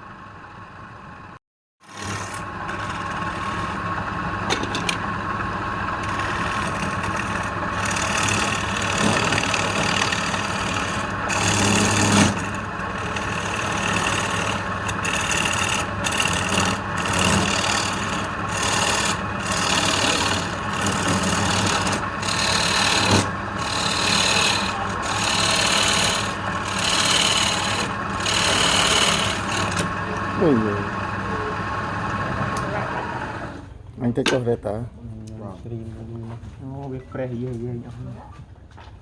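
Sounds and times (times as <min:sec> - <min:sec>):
low motor hum: 0:00.0 - 0:34.2
rasping hiss on wood lathe: 0:06.1 - 0:29.8.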